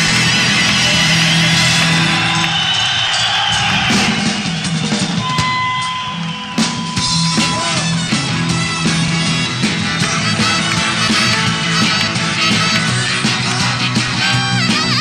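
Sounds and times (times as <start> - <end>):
bass guitar: 0.0 - 2.6, 6.6 - 15.0
drum kit: 0.0 - 15.0
rock band playing: 0.0 - 15.0.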